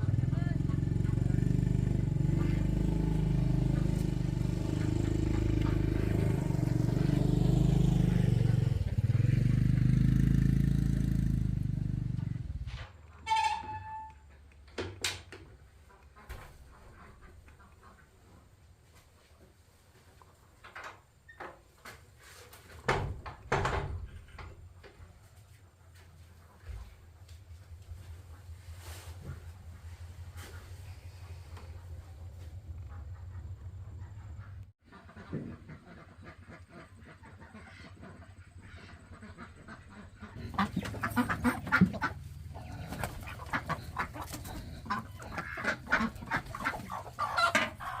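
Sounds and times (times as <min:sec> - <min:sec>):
chickens clucking: 0:00.0 - 0:10.0, 0:15.4 - 0:20.6, 0:27.8 - 0:48.0
knocks and clatters of objects: 0:20.6 - 0:25.1.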